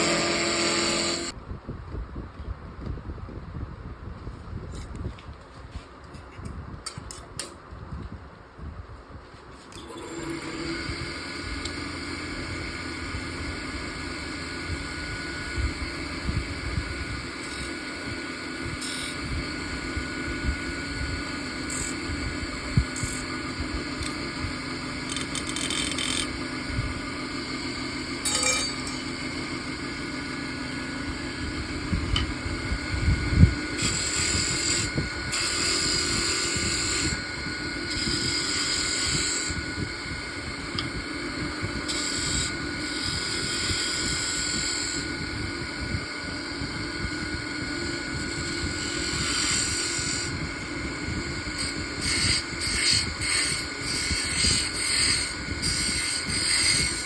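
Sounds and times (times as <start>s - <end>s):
lathe motor whine: 0.0s - 1.4s, 9.7s - 57.0s
tool scraping spinning wood: 0.0s - 1.4s, 9.6s - 16.1s, 17.1s - 45.2s, 47.4s - 57.0s.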